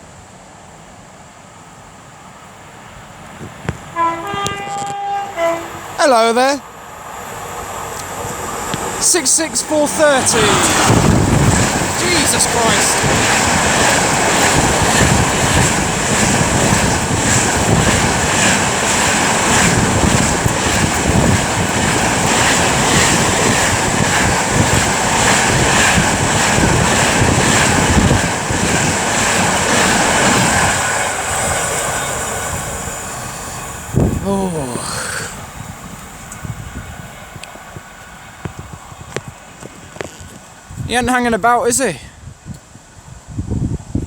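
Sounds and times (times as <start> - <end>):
freight train rushing rumble: 0.0 - 44.0
train wheels clattering over rails: 7.8 - 33.5.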